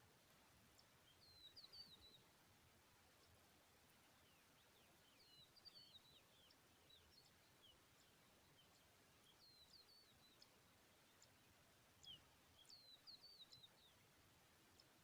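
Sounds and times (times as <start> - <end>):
faint hiss: 0.0 - 15.0
faint high bird chirps: 0.8 - 2.3, 4.0 - 14.1.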